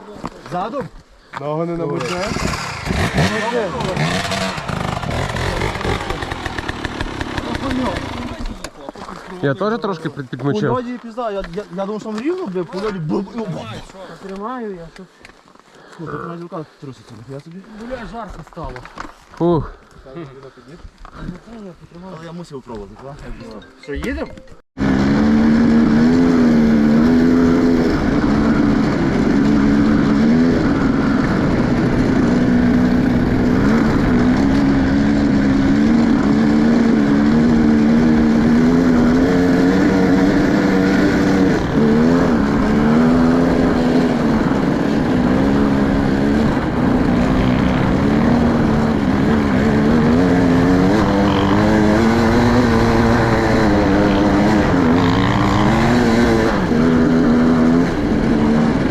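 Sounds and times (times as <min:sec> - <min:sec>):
motorcycle engine revving: 0:01.9 - 0:08.8, 0:24.8 - 0:58.9.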